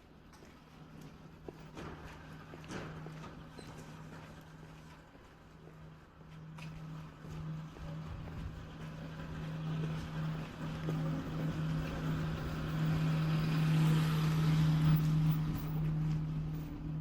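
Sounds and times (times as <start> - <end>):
steady low hum: 0.0 - 17.0
vehicle passing by: 6.4 - 17.0.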